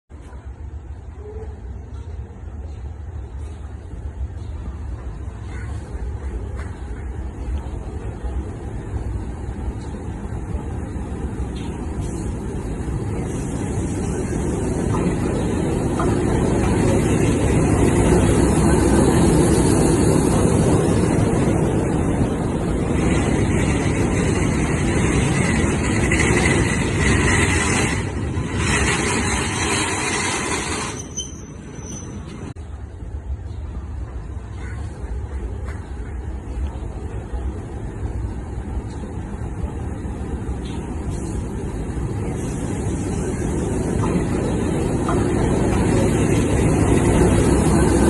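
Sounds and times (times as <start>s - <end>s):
train rumbling past: 0.1s - 48.0s
hiss: 12.0s - 15.4s.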